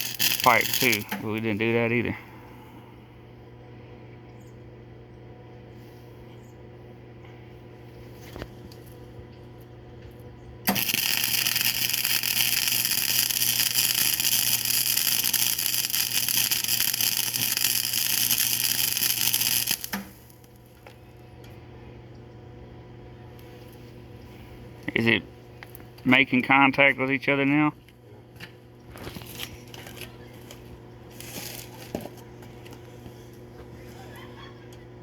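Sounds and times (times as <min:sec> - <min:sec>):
welder arc crackling and hissing: 0:00.0 - 0:02.2, 0:10.6 - 0:20.9, 0:31.1 - 0:31.9
steady electrical hum: 0:00.0 - 0:35.0.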